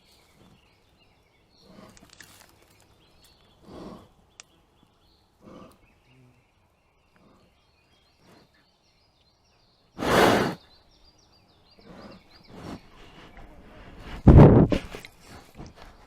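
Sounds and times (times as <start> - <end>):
small birds chirping: 0.0 - 16.0
bear huffing breath: 3.5 - 4.2, 5.4 - 5.9, 10.0 - 10.6, 11.8 - 16.0.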